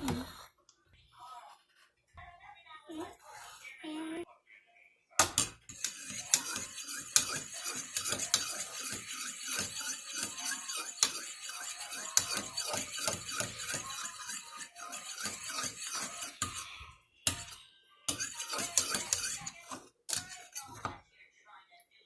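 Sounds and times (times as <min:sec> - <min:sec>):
spoon scraping a bowl: 0:05.7 - 0:21.0.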